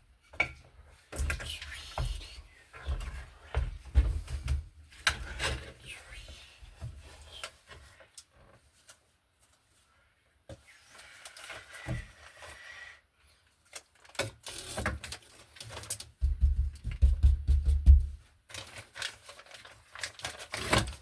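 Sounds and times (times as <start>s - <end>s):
heavy thuds: 16.2s - 18.2s.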